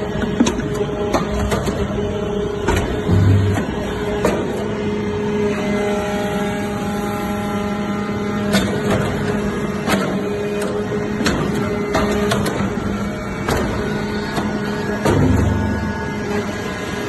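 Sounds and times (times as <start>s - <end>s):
baling press machine hum: 0.0s - 17.0s.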